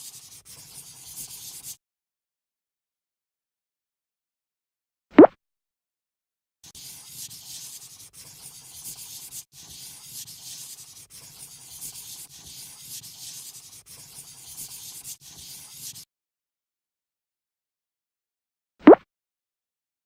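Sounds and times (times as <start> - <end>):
drawing tool rubbing on paper: 0.0 - 1.8, 6.6 - 16.1.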